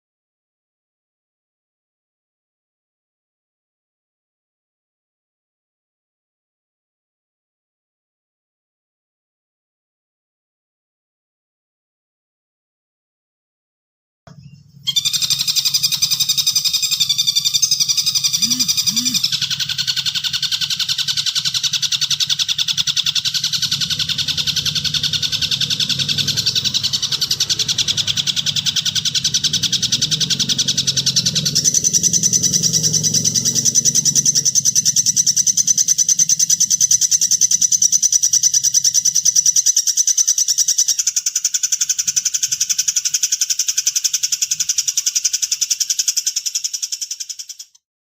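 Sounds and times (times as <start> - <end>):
harsh rapid bird chattering: 14.5 - 47.8.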